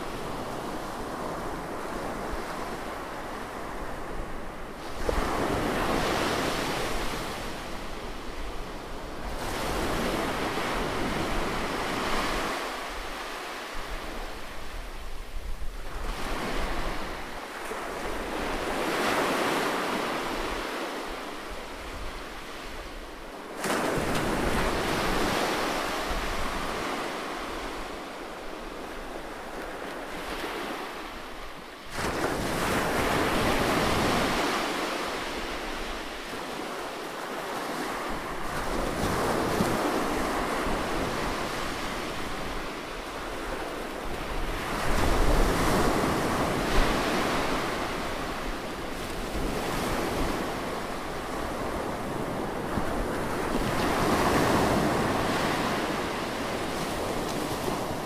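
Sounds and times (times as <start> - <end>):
ocean waves washing: 15.9 - 58.0.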